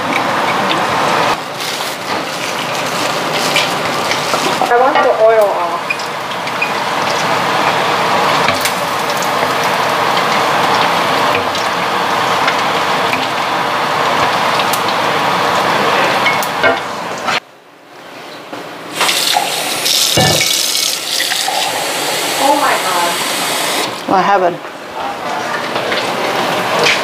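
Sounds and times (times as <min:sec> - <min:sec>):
chicken sizzling in oil: 0:18.9 - 0:24.0.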